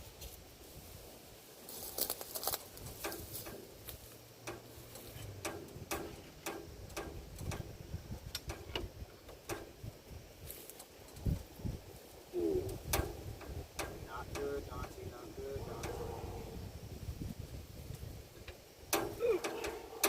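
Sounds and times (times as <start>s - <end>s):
metallic clicks and knocks: 2.9s - 9.9s, 12.7s - 15.0s, 18.4s - 20.0s.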